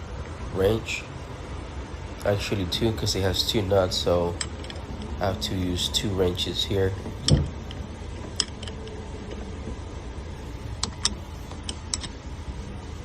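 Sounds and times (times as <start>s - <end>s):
low background rumble: 0.0s - 13.0s
wrenches clinking on metal nuts: 3.9s - 9.4s.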